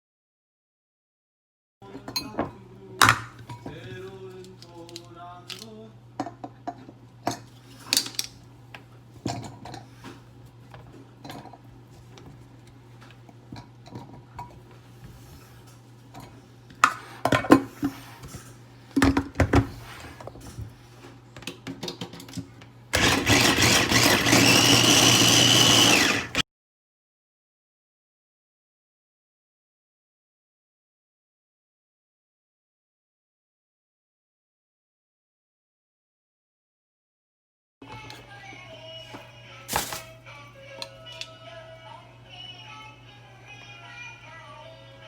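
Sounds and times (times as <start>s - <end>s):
dishes and utensils clinking: 1.8s - 4.0s
electric blender running: 22.9s - 26.4s.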